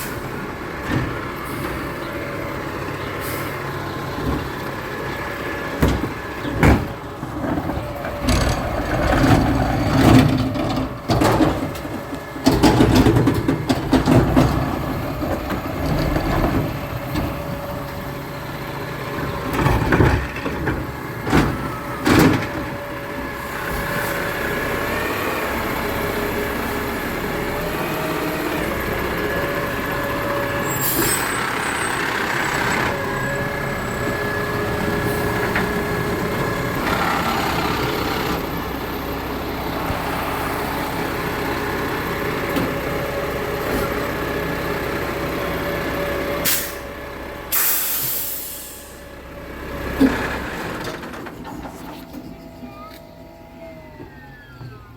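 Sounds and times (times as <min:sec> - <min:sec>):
garbage truck engine whining: 0:00.0 - 0:54.9
air-brake hiss: 0:47.5 - 0:49.0.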